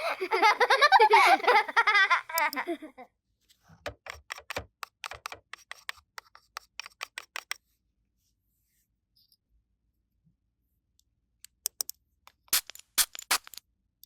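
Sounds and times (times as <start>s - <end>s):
small hard objects clicking: 11.5s - 13.6s.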